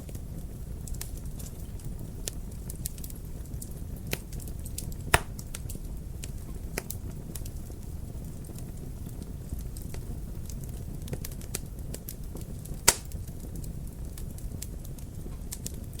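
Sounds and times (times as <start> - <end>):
low rumble of flame: 0.0 - 16.0
wood fire crackling: 0.1 - 16.0
sharp fire pops: 5.1 - 5.7, 12.8 - 13.4.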